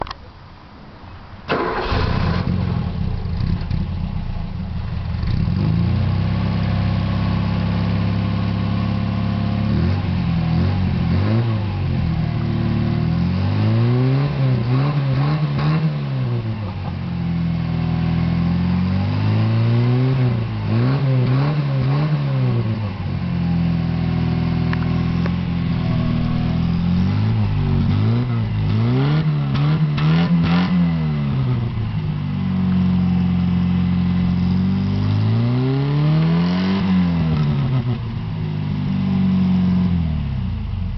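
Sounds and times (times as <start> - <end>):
car engine revving: 9.2 - 16.8, 17.8 - 40.9.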